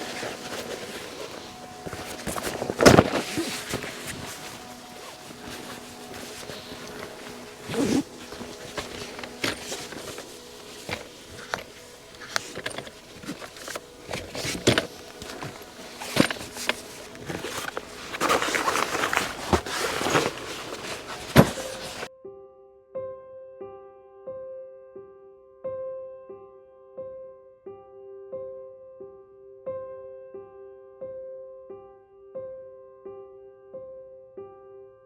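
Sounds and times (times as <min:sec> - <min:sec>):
footsteps: 0:00.0 - 0:22.1
rustling: 0:00.0 - 0:22.1.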